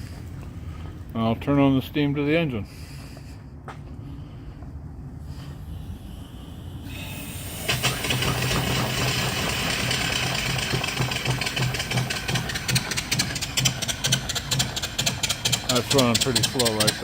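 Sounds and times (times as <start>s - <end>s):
steam hissing: 5.3s - 17.0s
steam engine chuffing and knocking: 6.8s - 17.0s.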